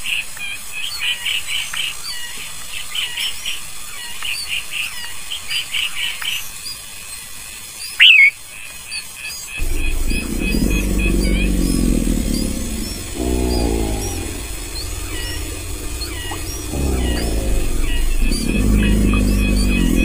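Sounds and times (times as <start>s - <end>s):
nestlings chirping: 9.6s - 20.0s.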